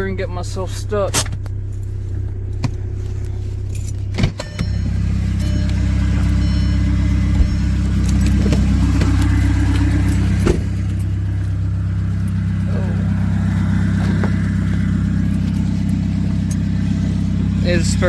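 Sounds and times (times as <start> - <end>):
diesel car engine running: 0.0 - 18.0
engine knock: 4.6 - 18.0.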